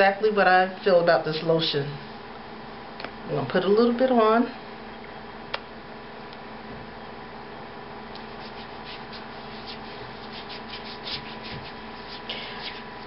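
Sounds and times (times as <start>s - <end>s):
hands rubbing lotion on skin: 8.2s - 12.9s.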